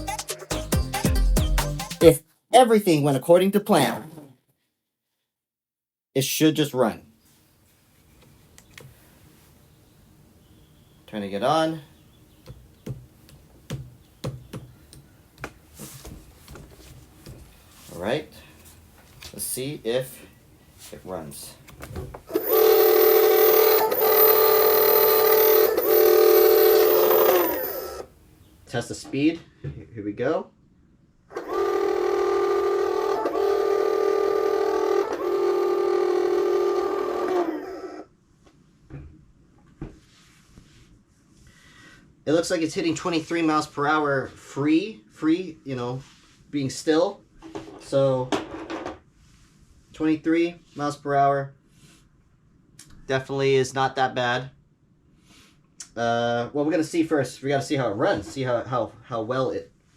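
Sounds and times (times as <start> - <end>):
electric motor high whine: 22.3 - 28.1.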